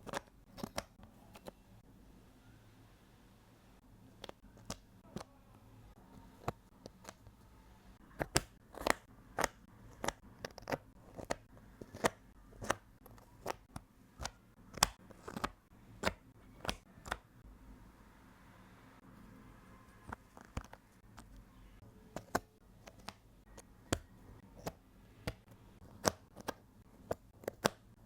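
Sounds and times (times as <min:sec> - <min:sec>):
jigsaw puzzle pieces clicking: 0:08.1 - 0:17.2, 0:22.1 - 0:27.9.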